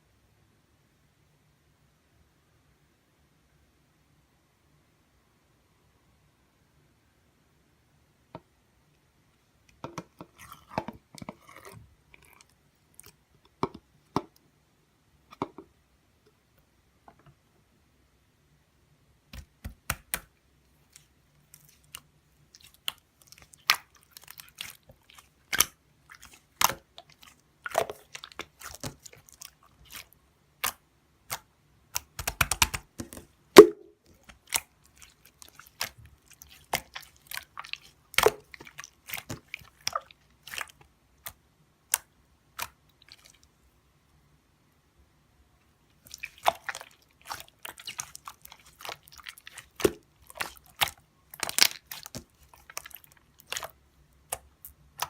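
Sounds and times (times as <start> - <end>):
slime sticky pops and crackles: 30.6 - 34.7, 46.2 - 55.0.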